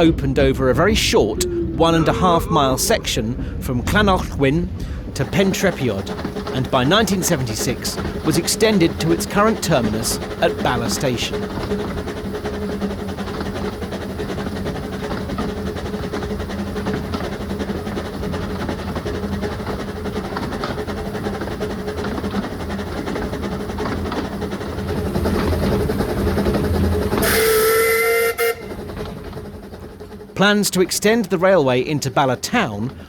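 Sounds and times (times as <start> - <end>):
steam train rumbling: 0.0 - 33.0
steam whistle blowing: 27.2 - 28.8.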